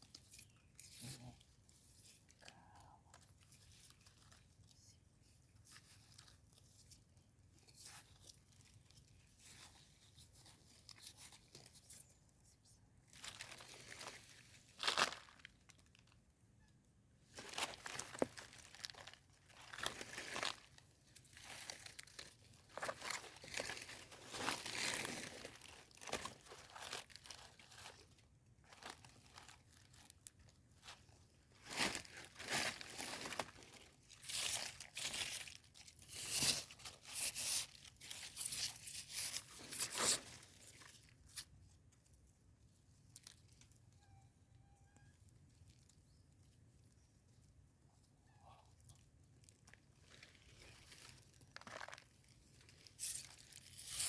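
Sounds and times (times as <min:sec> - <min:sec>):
rustling and tearing leaves: 0:13.1 - 0:16.2, 0:17.3 - 0:41.5, 0:49.5 - 0:54.0.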